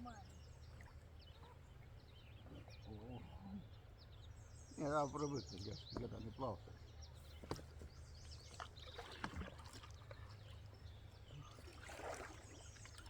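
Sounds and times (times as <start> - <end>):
oar strokes splashing in water: 7.4 - 13.0.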